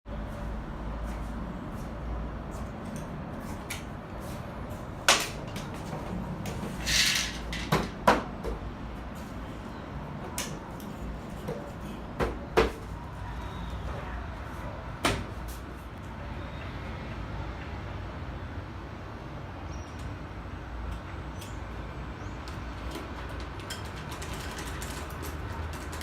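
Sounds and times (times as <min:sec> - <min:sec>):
glass panels knocking and clacking: 0:06.8 - 0:08.5.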